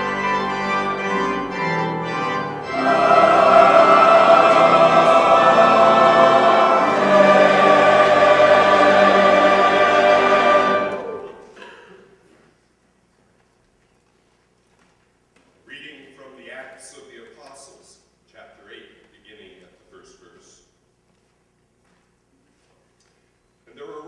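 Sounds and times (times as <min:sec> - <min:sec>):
church choir singing chords: 0:00.0 - 0:11.8.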